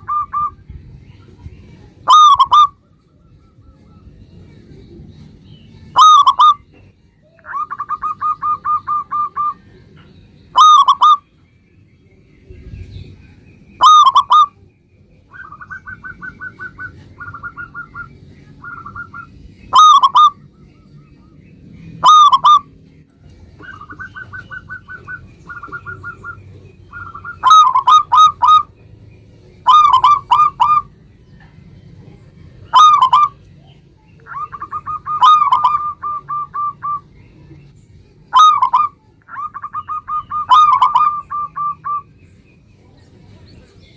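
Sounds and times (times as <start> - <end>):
dove cooing: 0.0 - 0.7, 2.0 - 4.0, 5.9 - 9.8, 10.6 - 11.2, 13.8 - 14.6, 15.3 - 20.5, 22.0 - 22.8, 23.6 - 28.8, 29.6 - 31.0, 32.7 - 33.5, 34.2 - 37.1, 38.3 - 42.1.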